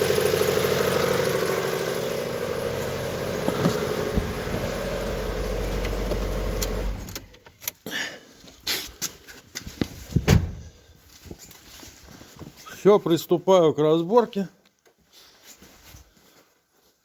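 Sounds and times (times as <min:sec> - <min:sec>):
car engine idling with rattle: 0:00.0 - 0:07.4.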